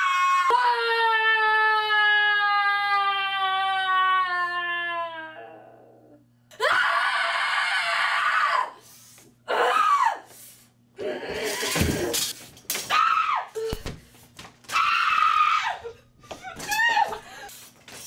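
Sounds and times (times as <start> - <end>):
woman screaming: 9.5 - 10.2, 12.9 - 13.7, 14.7 - 15.9, 16.5 - 17.2.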